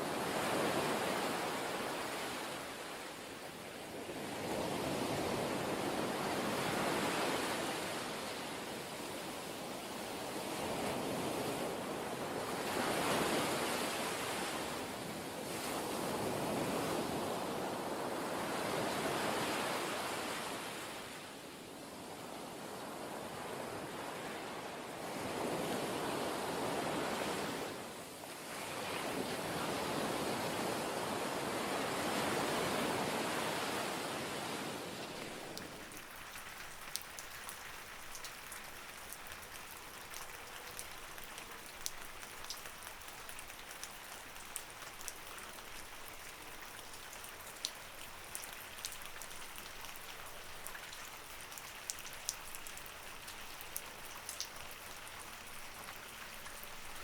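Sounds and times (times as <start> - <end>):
waves washing in: 0.0 - 21.3, 22.4 - 57.0
light rain: 0.0 - 28.0, 28.7 - 57.0
raindrops ticking: 35.2 - 57.0.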